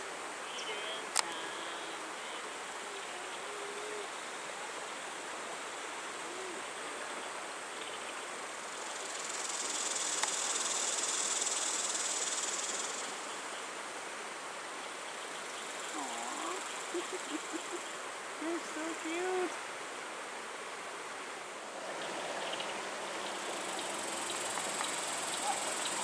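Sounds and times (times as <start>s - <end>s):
flowing river water: 0.0s - 26.0s
insect chorus: 0.0s - 26.0s
shrill insect buzz: 8.8s - 13.2s.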